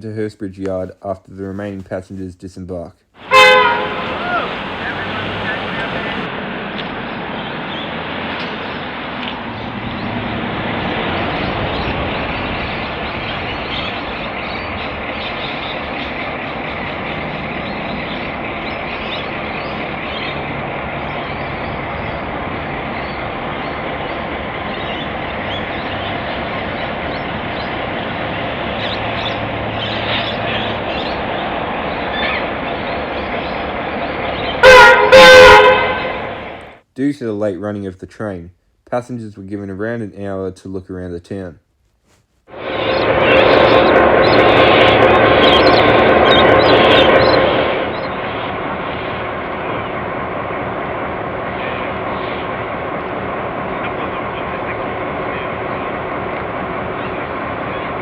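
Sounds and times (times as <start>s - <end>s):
locomotive engines droning: 3.2s - 6.3s, 15.5s - 36.8s, 42.6s - 58.0s
train wheels rolling on rails: 3.2s - 6.3s.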